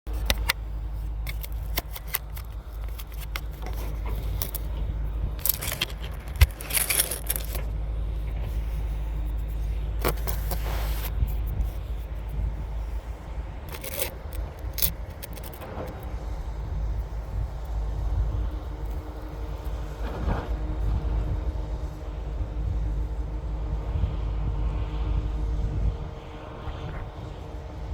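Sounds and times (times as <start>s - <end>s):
scraping bursts: 0.1s - 12.1s, 13.6s - 16.1s
diesel engine drone: 0.1s - 27.9s.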